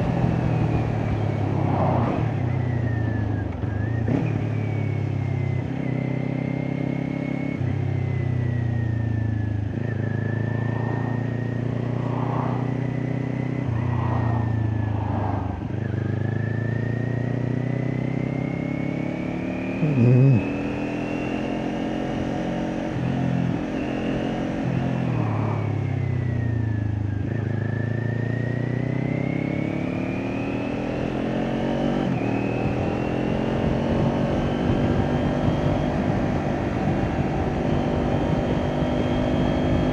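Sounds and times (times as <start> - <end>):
motorcycle engine revving: 8.8 - 39.9.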